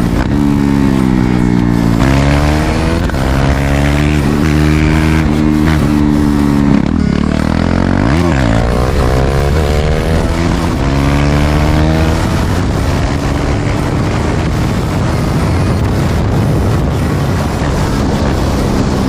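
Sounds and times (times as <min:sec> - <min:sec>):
motorcycle engine accelerating: 0:00.0 - 0:19.0
steady rushing noise: 0:00.0 - 0:19.0.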